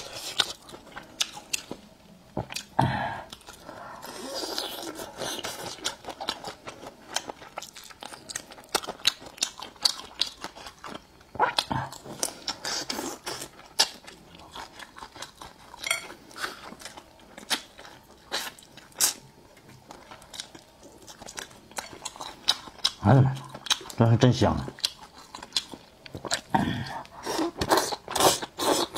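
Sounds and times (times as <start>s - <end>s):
chewing crunches: 4.2s - 24.0s, 24.6s - 28.9s.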